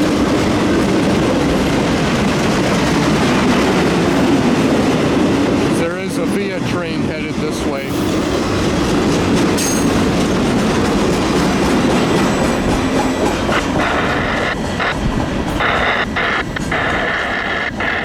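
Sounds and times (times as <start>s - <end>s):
freight train wheels clacking: 0.0s - 18.0s
train brakes squealing: 7.8s - 8.6s, 9.6s - 10.3s, 11.6s - 18.0s.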